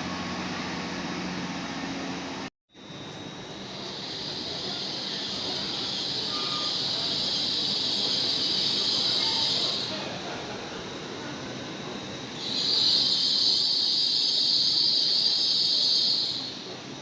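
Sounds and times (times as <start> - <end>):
wheels squealing on rails: 3.7 - 10.1, 12.3 - 16.8
train rail noise: 3.7 - 17.0.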